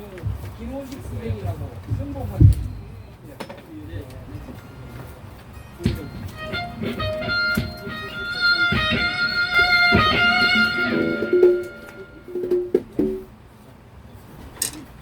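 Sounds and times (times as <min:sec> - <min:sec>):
low thumps: 0:01.2 - 0:03.0, 0:05.8 - 0:13.3
electric guitar notes: 0:05.6 - 0:13.3.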